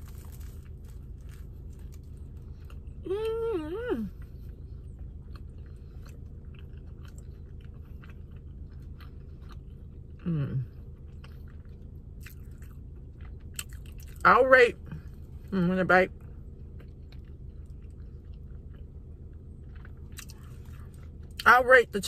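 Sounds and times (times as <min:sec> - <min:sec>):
person chewing: 0:00.0 - 0:15.5, 0:16.2 - 0:21.5
steady low hum: 0:00.0 - 0:22.0
person saying mmm: 0:03.0 - 0:04.2, 0:10.2 - 0:10.7.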